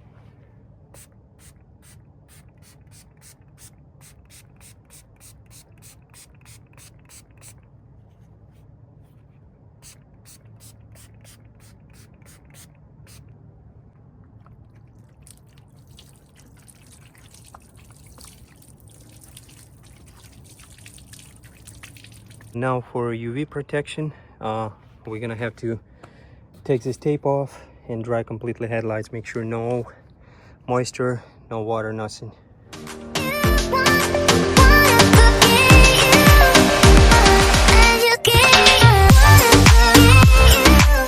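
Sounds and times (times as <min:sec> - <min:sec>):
soft continuous spray hiss: 0:00.0 - 0:25.8
spray bottle squirts: 0:01.0 - 0:07.6, 0:09.8 - 0:13.3, 0:14.7 - 0:22.6.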